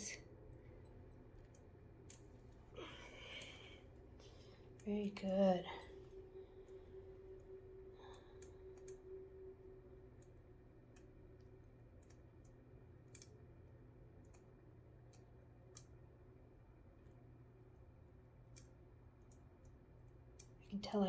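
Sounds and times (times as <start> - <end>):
faint clicks: 5.7 - 9.2.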